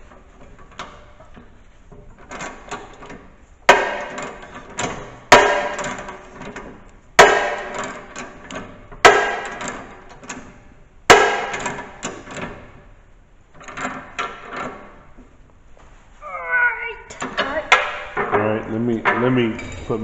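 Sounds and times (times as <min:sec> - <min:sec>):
hammer striking metal: 0:03.7 - 0:04.4, 0:05.3 - 0:06.2, 0:07.2 - 0:08.0, 0:09.0 - 0:09.8, 0:11.1 - 0:11.8, 0:19.0 - 0:20.0.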